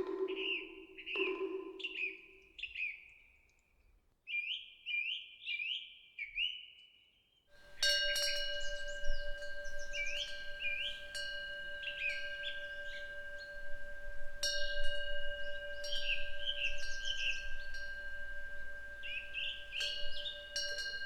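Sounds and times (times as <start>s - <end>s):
metal wind bell ringing: 7.6s - 21.0s.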